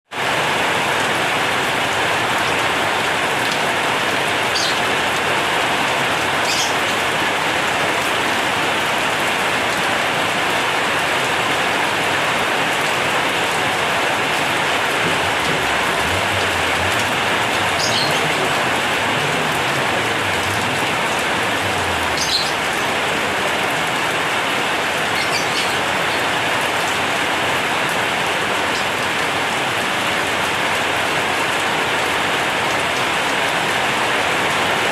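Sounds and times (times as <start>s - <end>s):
heavy rain on a metal roof: 0.1s - 34.9s.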